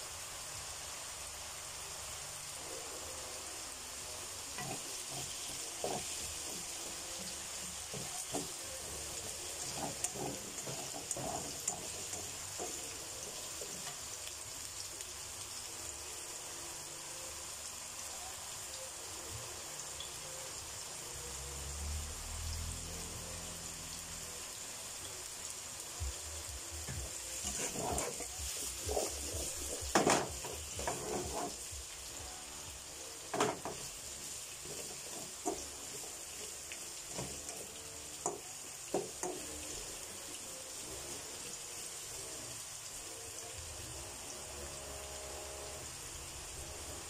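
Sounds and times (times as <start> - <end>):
vegetables sizzling in a pan: 0.0 - 47.0
spatula scraping and knocking pan: 4.6 - 14.0, 26.9 - 31.7.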